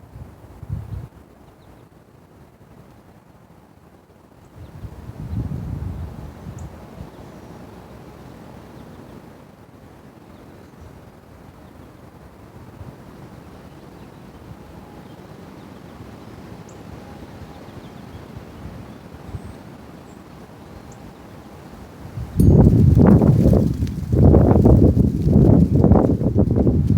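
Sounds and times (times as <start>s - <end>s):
wind noise on microphone: 0.0s - 1.4s, 4.5s - 7.2s, 21.6s - 26.9s.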